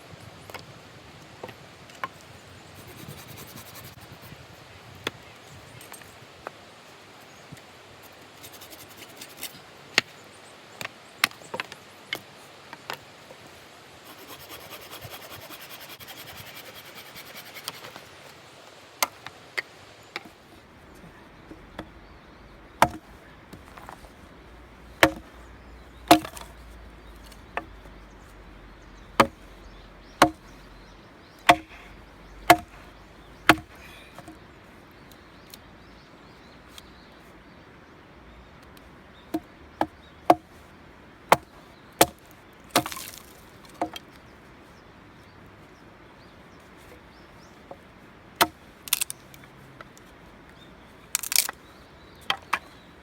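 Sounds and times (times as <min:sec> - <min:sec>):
axe chopping firewood: 0:22.7 - 0:24.1, 0:24.9 - 0:26.6, 0:29.1 - 0:29.4, 0:30.1 - 0:30.5, 0:31.4 - 0:34.4, 0:39.3 - 0:40.5, 0:41.3 - 0:44.0, 0:48.4 - 0:49.1, 0:51.2 - 0:51.6.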